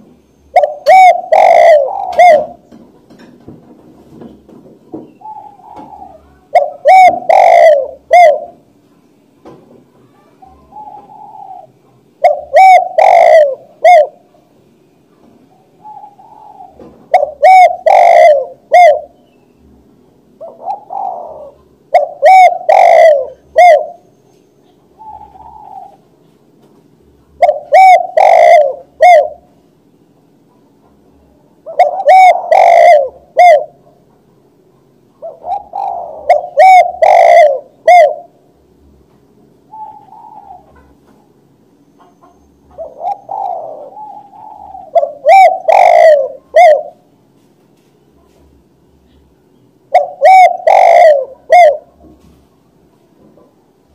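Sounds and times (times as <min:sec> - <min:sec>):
dove cooing: 0:00.0 - 0:02.8, 0:05.1 - 0:08.8, 0:10.1 - 0:14.4, 0:15.5 - 0:19.2, 0:20.4 - 0:24.2, 0:24.8 - 0:26.2, 0:27.4 - 0:29.6, 0:30.5 - 0:38.5, 0:39.7 - 0:41.4, 0:42.0 - 0:47.1, 0:49.9 - 0:52.3.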